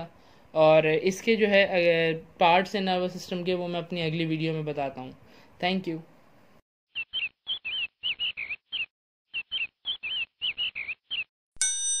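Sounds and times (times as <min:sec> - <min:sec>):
bird chirping: 0:06.9 - 0:11.3.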